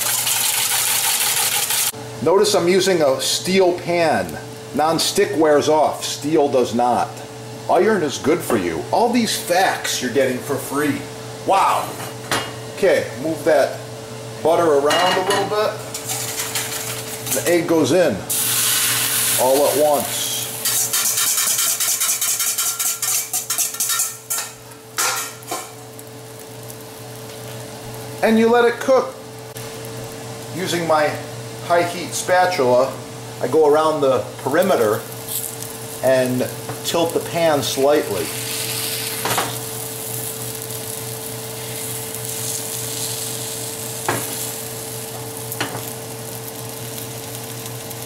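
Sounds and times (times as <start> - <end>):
egg sizzling in a pan: 0.0 - 2.0, 15.8 - 17.5, 18.3 - 28.3, 34.6 - 48.0
steady hum: 0.0 - 47.9
spatula scraping a pan: 20.6 - 25.3.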